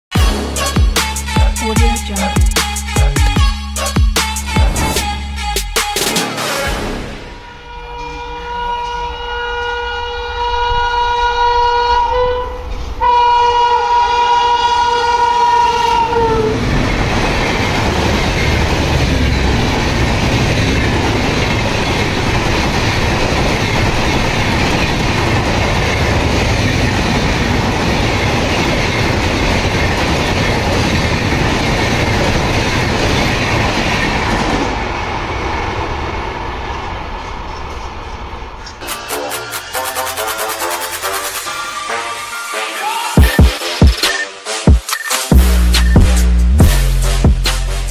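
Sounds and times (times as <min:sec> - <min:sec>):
locomotive horn blasts: 0:00.1 - 0:05.3, 0:06.2 - 0:16.6
train rushing past: 0:00.2 - 0:44.0.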